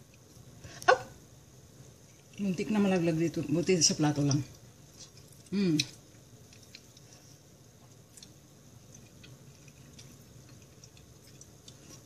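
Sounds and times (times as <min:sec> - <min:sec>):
chewing soft food: 0:00.0 - 0:00.8, 0:01.8 - 0:02.6, 0:04.2 - 0:12.0.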